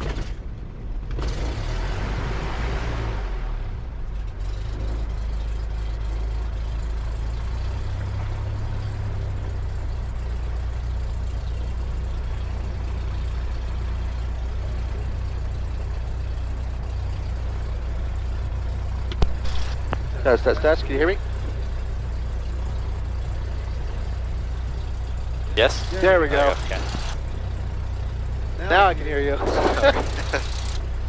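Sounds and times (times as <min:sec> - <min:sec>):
aircraft piston engine idling: 0:09.4 - 0:31.0.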